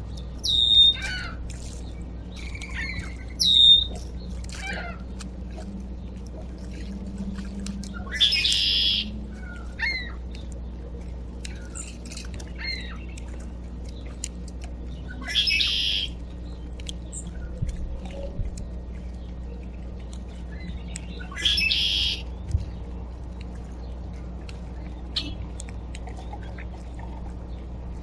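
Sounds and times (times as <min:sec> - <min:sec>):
bird harsh calls: 0:08.0 - 0:10.2, 0:15.0 - 0:16.2, 0:20.7 - 0:22.3.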